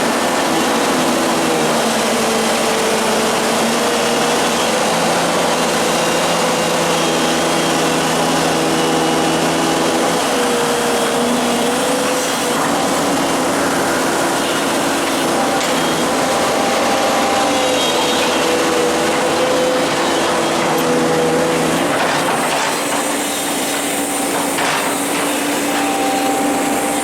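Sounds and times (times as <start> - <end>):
excavator engine running: 0.0 - 27.0.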